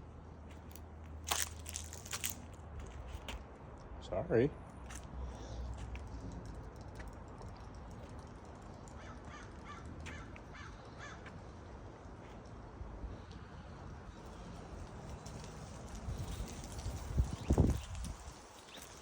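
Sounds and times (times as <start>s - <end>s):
crow cawing: 9.0s - 11.3s
wind rumbling on microphone: 14.5s - 19.0s.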